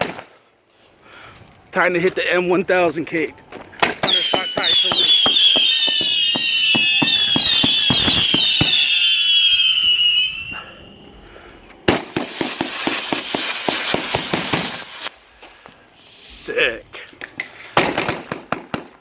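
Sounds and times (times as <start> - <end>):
firework pops: 3.5 - 9.1, 11.9 - 15.1, 17.8 - 19.0
loud firework bang: 3.8 - 10.8, 11.9 - 15.1
firework crackling: 3.8 - 11.1, 11.8 - 15.3
whistling firework tails: 3.8 - 15.2.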